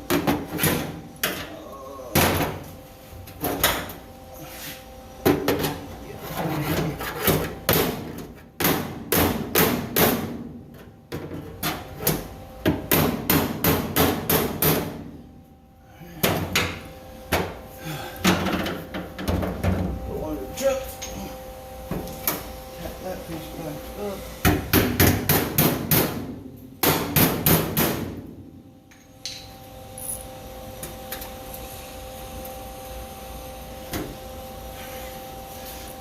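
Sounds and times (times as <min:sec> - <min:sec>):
faint steady hum: 0:00.0 - 0:27.5.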